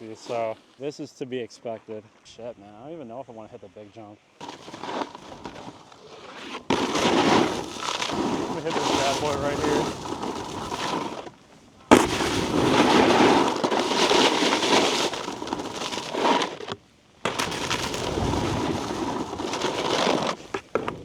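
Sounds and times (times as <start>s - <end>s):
snowboard scraping on icy snow: 0.0s - 1.0s, 4.4s - 21.0s
snowboard landing hit: 4.4s - 21.0s.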